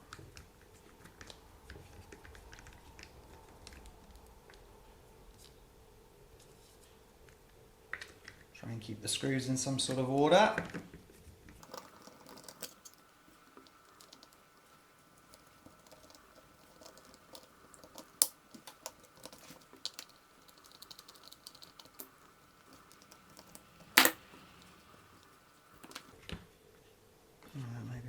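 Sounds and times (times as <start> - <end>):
screwdriver clicking on plastic parts: 11.6 - 26.1.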